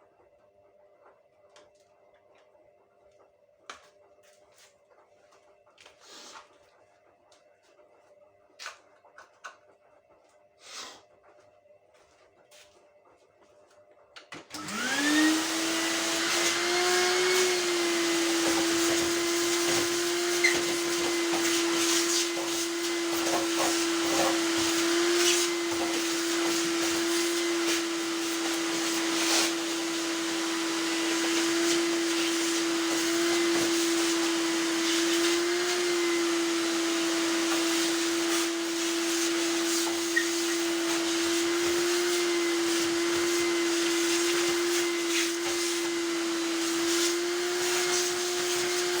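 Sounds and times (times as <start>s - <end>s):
electric motor and fan running: 14.5s - 49.0s.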